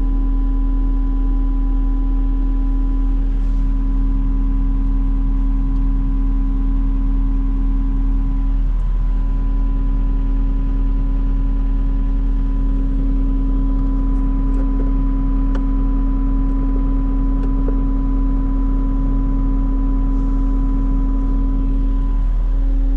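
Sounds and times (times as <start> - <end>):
engine whine: 8.2 - 22.9
diesel engine droning: 8.4 - 22.9.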